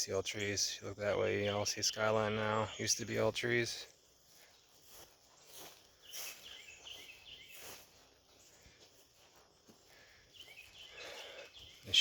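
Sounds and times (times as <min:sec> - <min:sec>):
soft rustles: 0:04.2 - 0:10.1.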